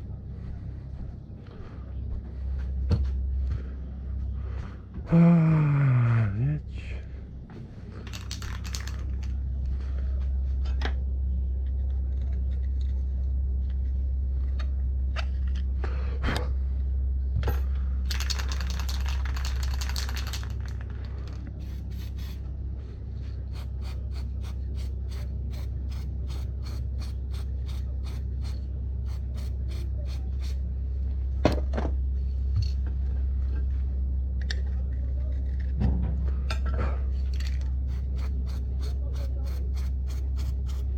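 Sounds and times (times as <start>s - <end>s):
steady low hum: 0.0s - 40.9s
metal tools clinking and scraping: 36.5s - 37.6s.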